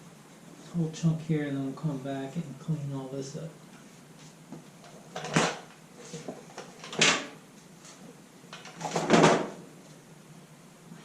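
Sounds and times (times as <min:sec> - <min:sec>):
clattering handling noises: 0:04.8 - 0:09.6.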